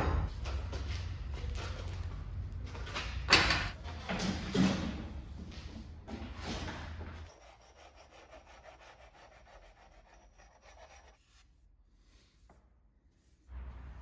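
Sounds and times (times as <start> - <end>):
faint rhythmic rubbing strokes: 7.3 - 13.6.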